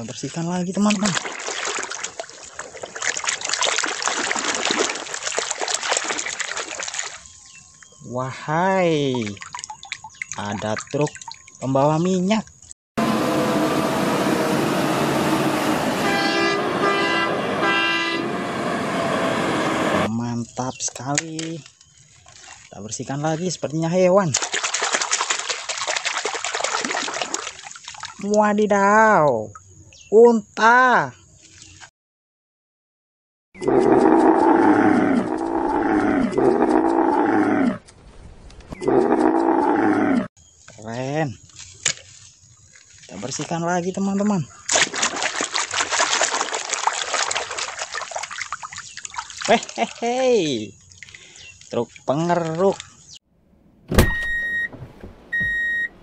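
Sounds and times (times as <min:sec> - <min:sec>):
vehicle horn tooting: 0:15.9 - 0:18.6
camel bellowing: 0:33.6 - 0:37.8.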